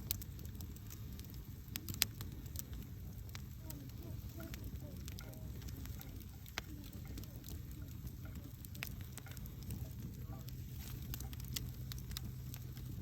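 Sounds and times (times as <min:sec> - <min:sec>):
fire crackling and popping: 0:00.0 - 0:13.0
flames rumbling: 0:00.0 - 0:13.0.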